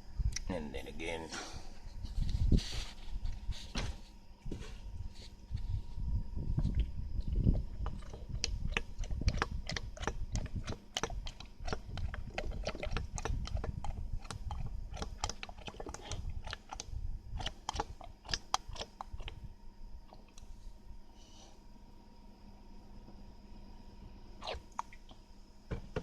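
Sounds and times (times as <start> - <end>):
low rumble: 4.8 - 10.8.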